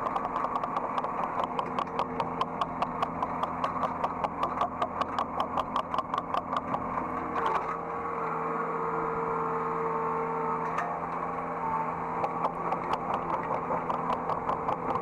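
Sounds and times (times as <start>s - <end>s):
regular ticking: 0.0s - 6.9s, 12.2s - 15.0s
steady whine: 0.0s - 8.3s, 11.6s - 15.0s
excavator running: 0.0s - 9.2s, 11.0s - 15.0s.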